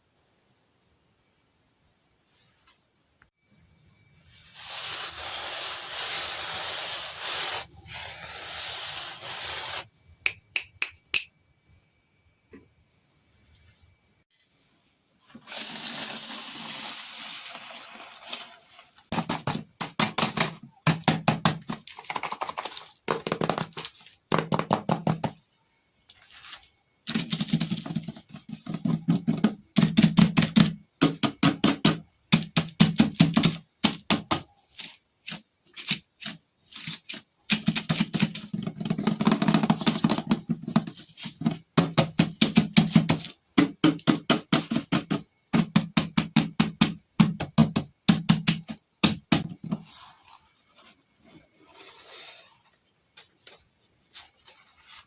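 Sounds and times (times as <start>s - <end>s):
rustling crinkle: 26.1s - 27.0s, 49.8s - 55.0s
rapid tapping on hollow object: 41.8s - 49.7s.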